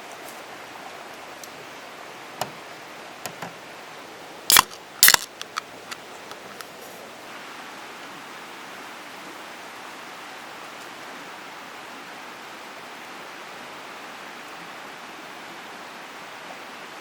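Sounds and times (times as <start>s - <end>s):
sharp clicks: 4.5s - 6.7s.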